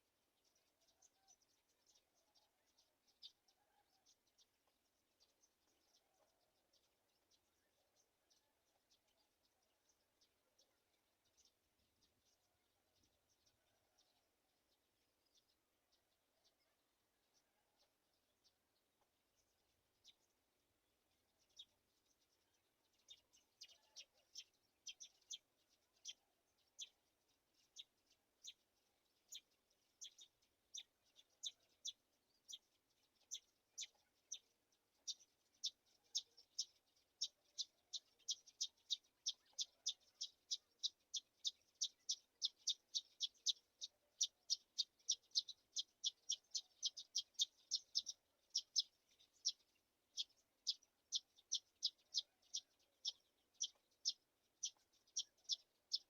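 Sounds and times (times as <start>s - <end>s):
bird chicks chirping: 21.4s - 56.0s.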